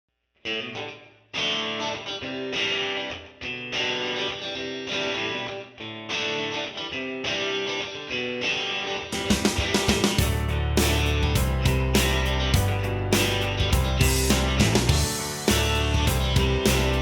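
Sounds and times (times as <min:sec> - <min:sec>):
guitar strumming chords: 0:00.4 - 0:17.0
steady beat: 0:09.2 - 0:17.0.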